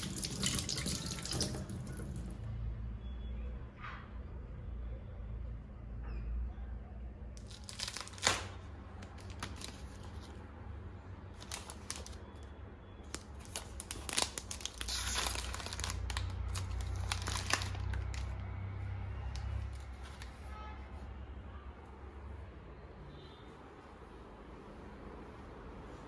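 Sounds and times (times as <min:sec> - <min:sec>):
wrapping material crinkling: 0:07.4 - 0:10.5, 0:11.3 - 0:20.6.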